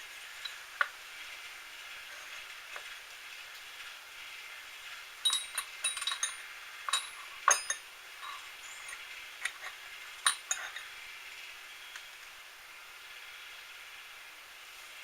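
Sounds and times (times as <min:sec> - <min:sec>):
faint steady hum: 0:00.0 - 0:15.0
light metallic clinks: 0:05.2 - 0:10.9.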